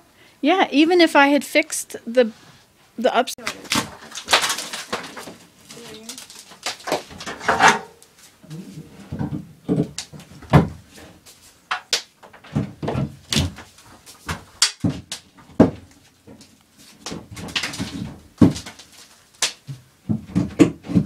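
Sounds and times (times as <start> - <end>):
sharp knocks and clatters: 6.1 - 8.1, 9.0 - 11.1, 11.7 - 21.0.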